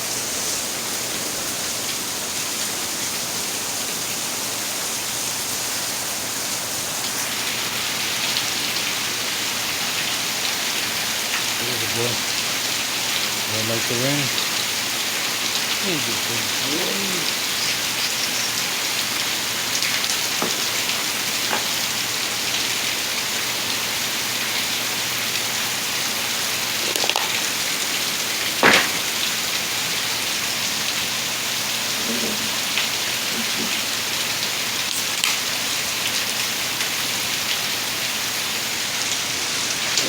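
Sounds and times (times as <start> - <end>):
louder raindrops: 0.0 - 40.0
rain falling: 0.0 - 40.0
sharp tap: 28.6 - 29.1.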